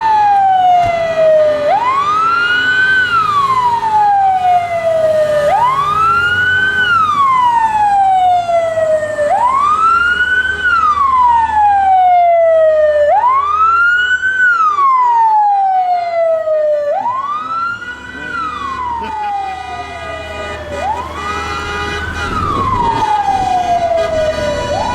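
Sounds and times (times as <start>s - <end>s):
emergency siren wailing: 0.0s - 24.9s.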